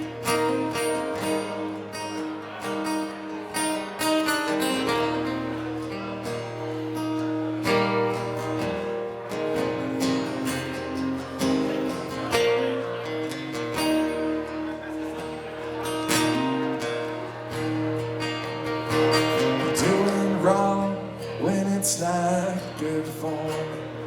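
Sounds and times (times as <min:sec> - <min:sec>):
acoustic guitars playing: 0:00.0 - 0:24.0.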